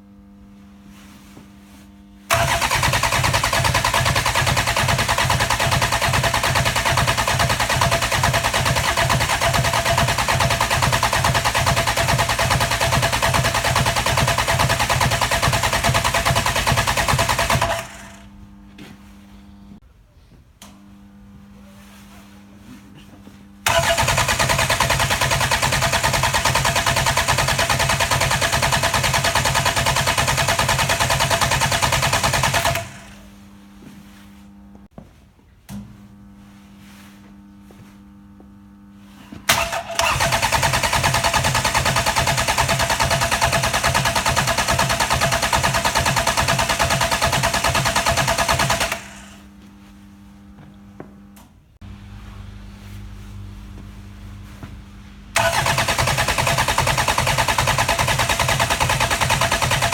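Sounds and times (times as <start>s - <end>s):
diesel engine cranking on starter: 2.3s - 18.3s, 23.6s - 33.2s, 39.5s - 49.4s, 55.3s - 59.9s.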